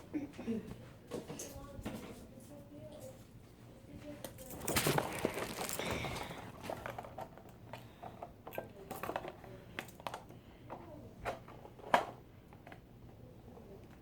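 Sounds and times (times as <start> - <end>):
fingers picking at taped package: 4.6 - 6.3.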